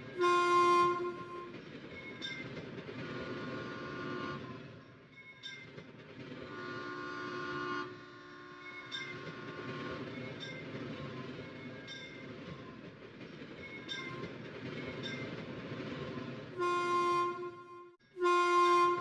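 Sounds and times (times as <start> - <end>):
train rumbling and clattering: 0.0 - 19.0
train horn toot: 0.2 - 1.6, 3.4 - 4.6, 6.5 - 8.9, 16.6 - 19.0.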